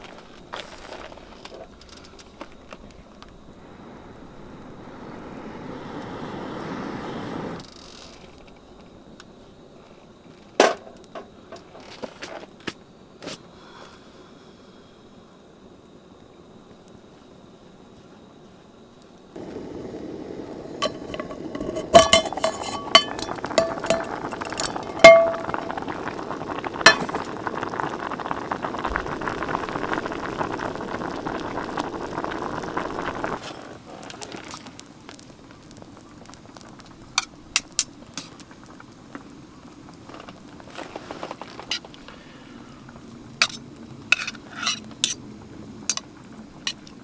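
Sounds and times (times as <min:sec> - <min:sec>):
hot pot bubbling: 0:03.5 - 0:07.7, 0:19.4 - 0:42.2, 0:42.8 - 0:47.0
utensils clinking against dishes: 0:20.8 - 0:25.7.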